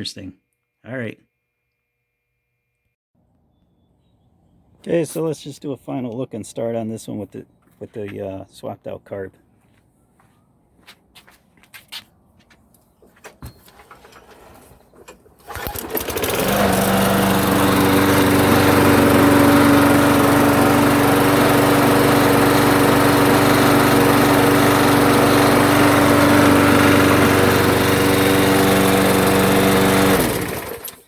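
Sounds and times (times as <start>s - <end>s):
lawn mower engine running: 13.7s - 31.0s.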